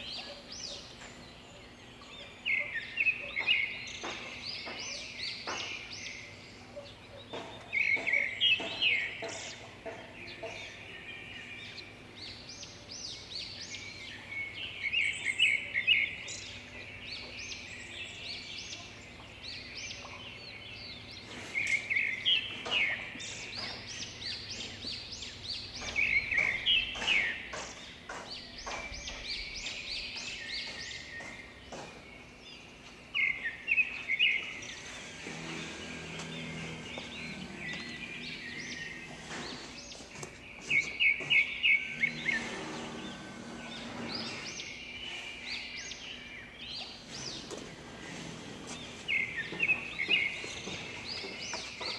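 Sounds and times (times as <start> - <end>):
bird chirping rapidly: 2.3 - 32.4.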